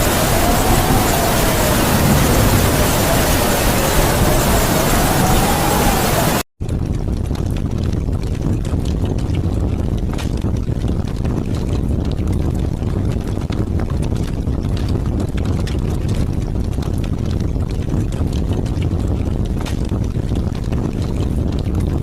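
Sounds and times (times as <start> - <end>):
raindrops tapping: 0.0 - 6.4
howling wind: 0.0 - 6.5.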